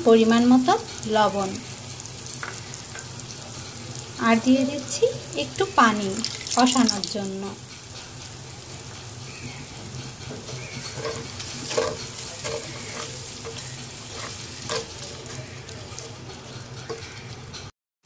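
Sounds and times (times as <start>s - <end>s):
spice paste sizzling in oil: 0.0s - 17.7s
spatula scraping a pan: 7.7s - 17.7s.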